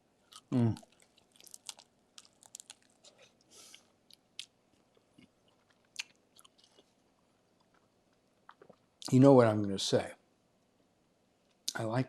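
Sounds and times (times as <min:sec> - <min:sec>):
person chewing wet smacking: 0:00.3 - 0:07.0, 0:07.6 - 0:09.1.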